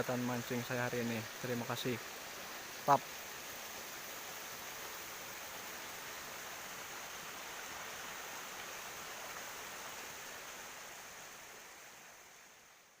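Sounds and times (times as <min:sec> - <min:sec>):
waterfall and stream rushing: 0:00.0 - 0:13.0.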